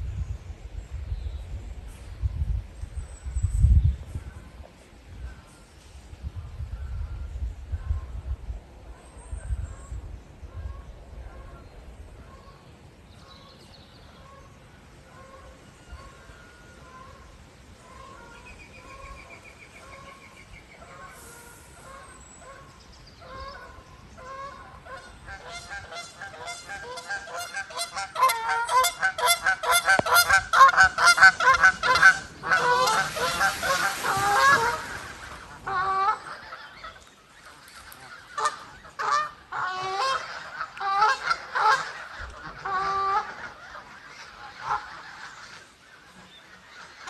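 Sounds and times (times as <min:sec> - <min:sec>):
geese honking: 0:20.8 - 0:47.0.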